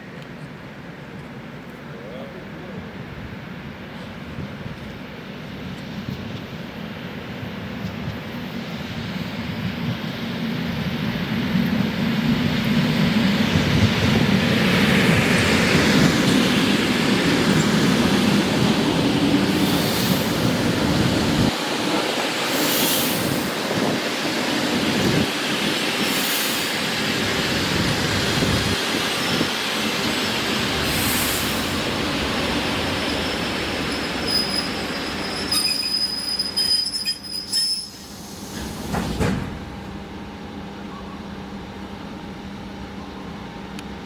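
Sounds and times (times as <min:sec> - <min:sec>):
steady train hum: 0:00.0 - 0:44.0
electric train running over rails: 0:02.7 - 0:44.0
train brakes squealing: 0:22.4 - 0:23.6, 0:29.0 - 0:39.4.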